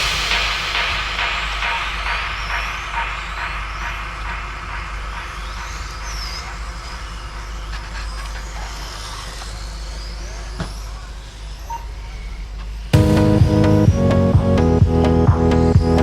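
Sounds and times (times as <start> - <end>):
rc motorbikes whining: 5.2 - 12.9.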